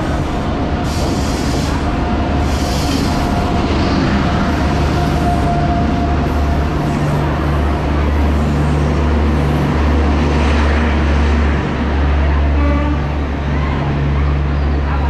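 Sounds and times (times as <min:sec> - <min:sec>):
electric train rolling past: 0:00.0 - 0:15.0.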